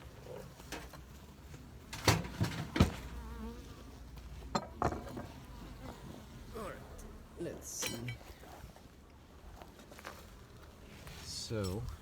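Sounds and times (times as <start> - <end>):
bees buzzing faintly: 2.9 - 3.9.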